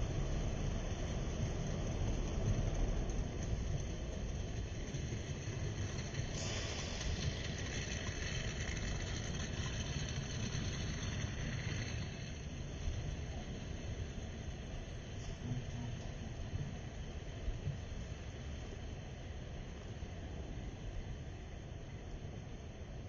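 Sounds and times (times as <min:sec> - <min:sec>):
low background rumble: 0:00.0 - 0:23.0
high hiss: 0:04.7 - 0:23.0.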